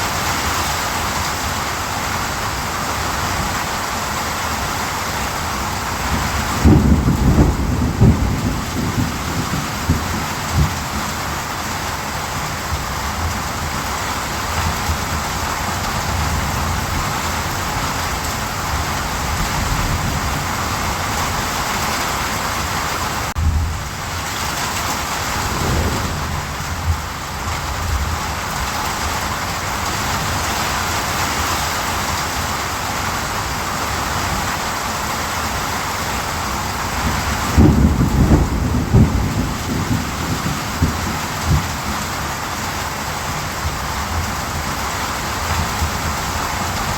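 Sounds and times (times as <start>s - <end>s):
steady rain hissing: 0.0s - 46.9s
low thunder rumbling: 6.1s - 11.1s, 25.0s - 28.7s, 37.4s - 41.9s.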